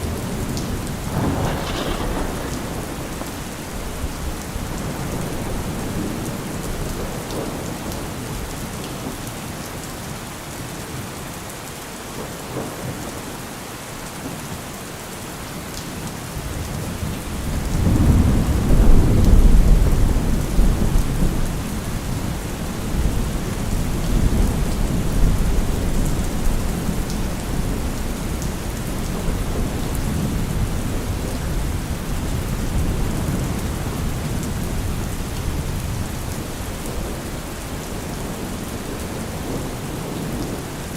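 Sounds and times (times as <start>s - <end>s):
thunder rumbling: 0.0s - 8.5s, 17.0s - 40.9s
steady rain falling: 0.0s - 40.9s.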